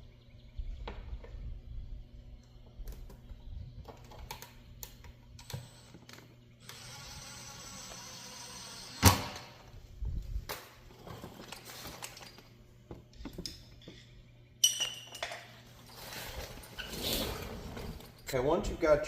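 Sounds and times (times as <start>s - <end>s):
metal tools clicking and clinking: 13.4s - 15.5s.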